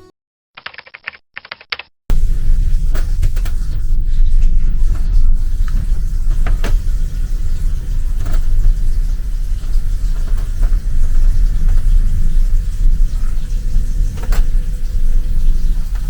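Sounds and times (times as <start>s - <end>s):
cabin structure creaking: 2.1s - 16.0s
deep ship rumble: 2.1s - 16.0s.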